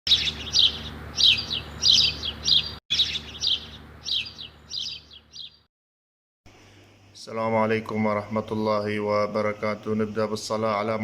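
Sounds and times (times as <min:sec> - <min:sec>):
budgerigars chirping: 0:00.1 - 0:05.7.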